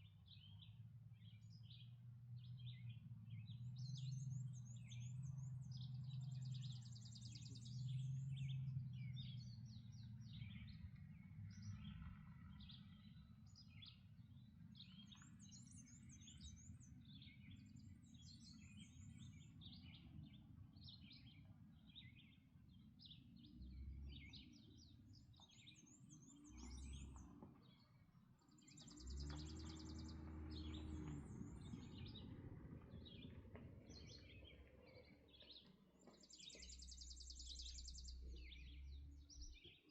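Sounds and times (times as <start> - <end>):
songbirds singing: 0.0 - 39.9
faint low rumble: 28.6 - 39.9.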